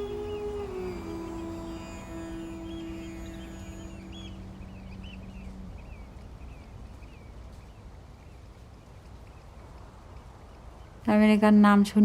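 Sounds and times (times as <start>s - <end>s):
held music drone: 0.0s - 6.9s
steady low rumble: 0.0s - 11.6s
small birds chirping: 0.0s - 12.0s.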